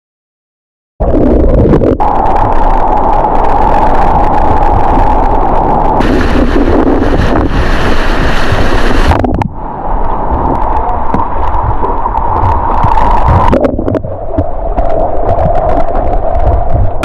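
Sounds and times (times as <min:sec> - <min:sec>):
wind buffeting microphone: 0:01.0 - 0:17.0
rushing white water: 0:02.0 - 0:17.0
water splashing: 0:03.6 - 0:17.0.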